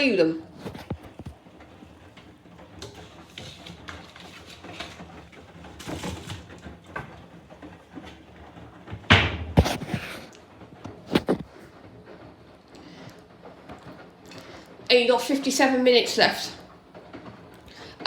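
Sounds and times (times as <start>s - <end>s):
washing machine drum turning: 0.8s - 9.8s
knock and rustle: 8.8s - 10.1s.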